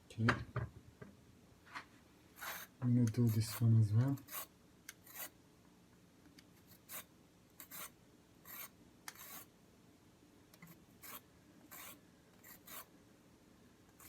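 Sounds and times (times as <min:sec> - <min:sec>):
carrot peeling strokes: 0:06.7 - 0:09.5, 0:10.6 - 0:12.9.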